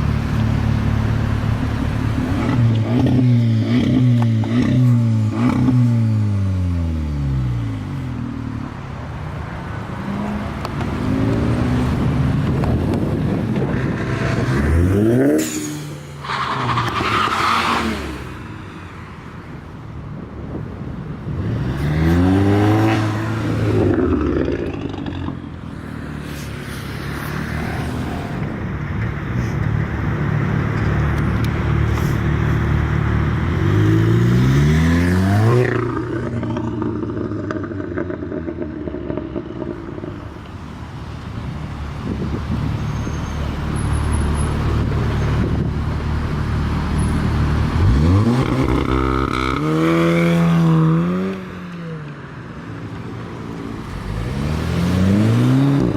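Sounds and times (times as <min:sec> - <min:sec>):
low engine and traffic rumble: 0:00.0 - 0:55.9
cars accelerating hard past: 0:53.8 - 0:55.9.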